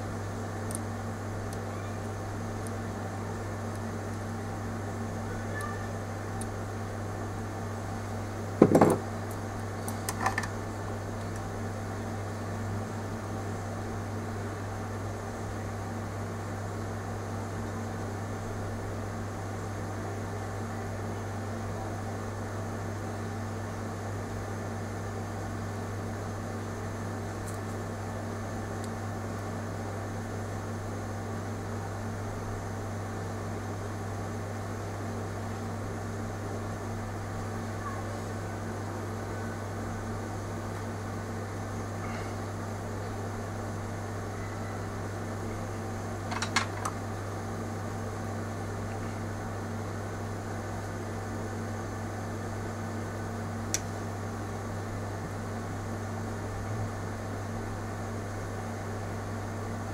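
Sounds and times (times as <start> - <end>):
steady electrical hum: 0.0 - 59.9.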